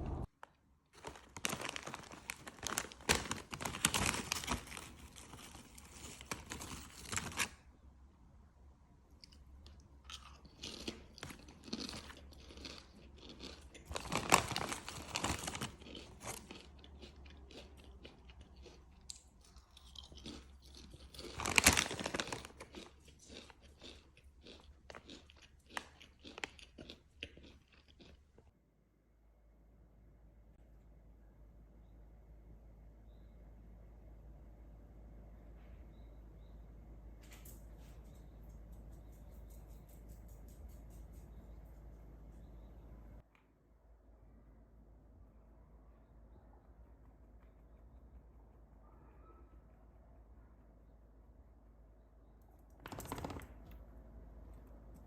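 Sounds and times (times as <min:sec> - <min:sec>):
chewing crunchy food: 0:09.1 - 0:28.5.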